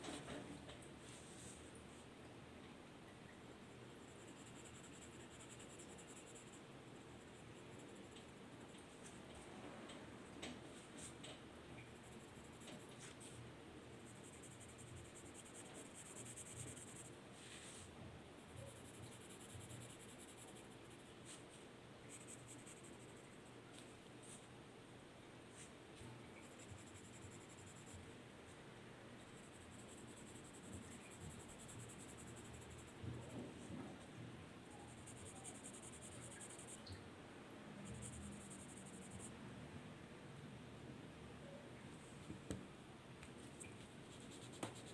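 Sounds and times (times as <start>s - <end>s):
soft hiss: 0.0s - 44.9s
pencil scratching on paper: 4.0s - 8.7s, 14.0s - 17.2s, 18.4s - 21.1s.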